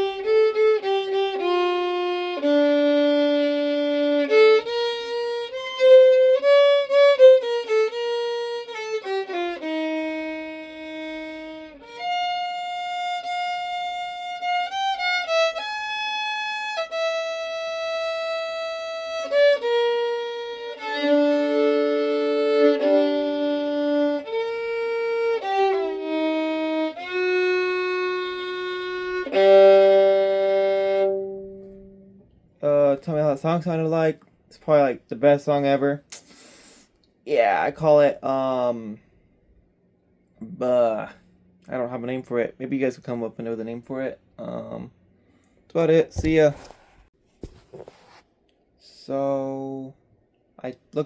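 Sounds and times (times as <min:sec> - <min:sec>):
solo violin playing slowly: 0:00.0 - 0:32.2.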